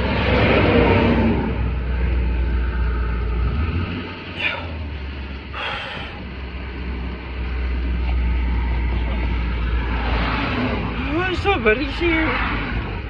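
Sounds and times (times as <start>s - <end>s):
vehicle engine idling: 0.0s - 13.0s
sharp heavy breaths: 4.3s - 6.3s.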